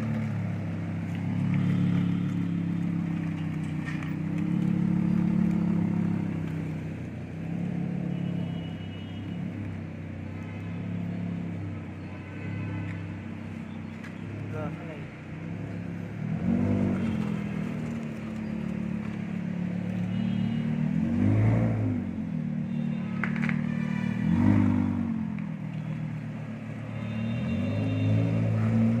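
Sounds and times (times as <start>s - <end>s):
car engine revving: 15.4s - 19.9s, 20.7s - 22.2s, 23.4s - 25.4s.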